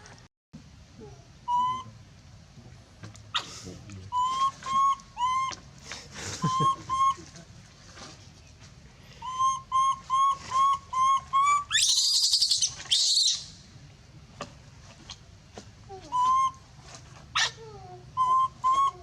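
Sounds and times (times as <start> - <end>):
monkey coo calls: 1.5 - 1.9, 4.1 - 5.6, 6.4 - 7.3, 9.2 - 13.5, 17.4 - 19.0
monkey screaming: 11.6 - 13.5.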